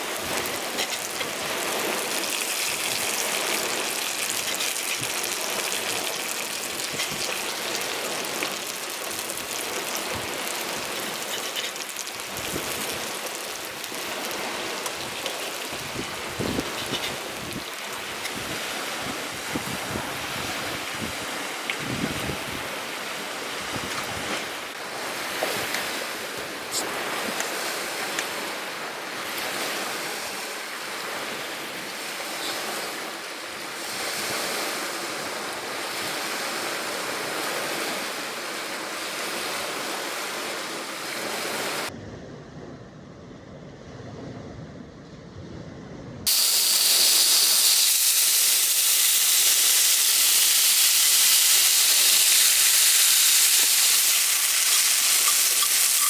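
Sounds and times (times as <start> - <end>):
steady rain falling: 0.0 - 19.4.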